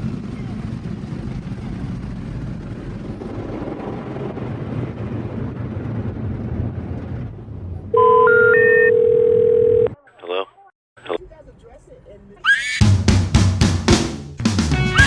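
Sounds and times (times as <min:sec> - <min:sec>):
car wash machinery and water: 0:00.0 - 0:07.9.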